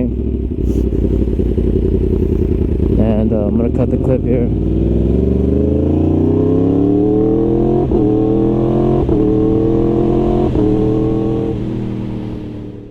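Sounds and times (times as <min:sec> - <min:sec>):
motorcycle engine accelerating: 0:00.0 - 0:12.9.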